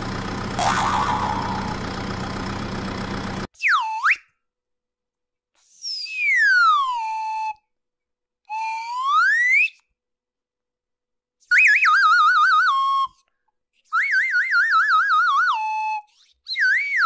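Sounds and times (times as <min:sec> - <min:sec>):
cartoon whistle glides: 0:00.6 - 0:01.8, 0:03.6 - 0:04.4, 0:05.6 - 0:07.6, 0:13.9 - 0:17.0
warbling whistle trill: 0:00.6 - 0:01.8.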